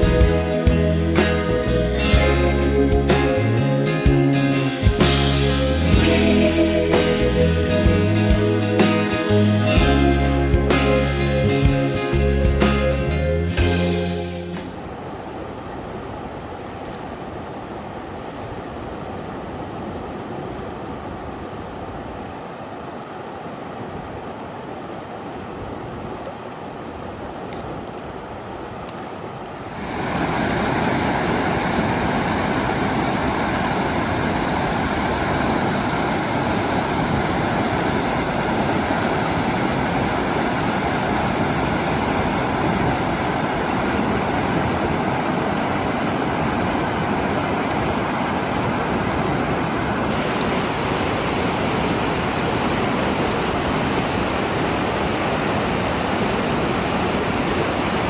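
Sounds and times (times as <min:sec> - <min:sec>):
rushing water roar: 0:00.0 - 0:58.0.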